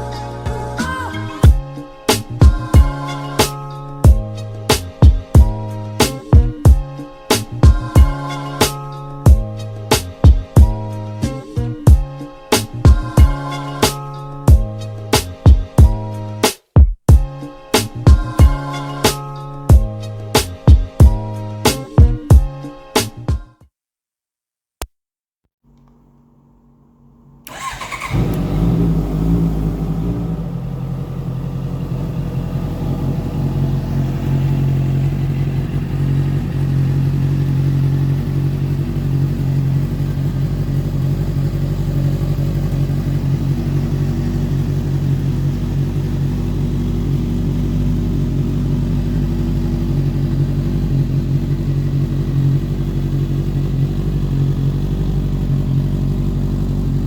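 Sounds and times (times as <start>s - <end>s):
motorcycle engine starting and idling: 26.9s - 57.0s.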